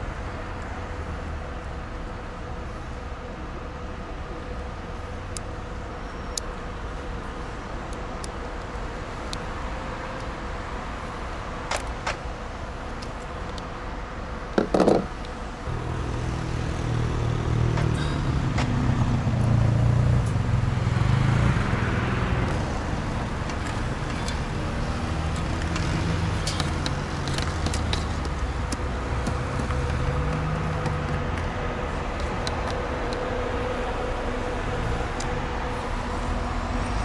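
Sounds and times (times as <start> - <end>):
vehicle engine running: 10.2 - 37.0
small tools clicking: 25.3 - 31.5.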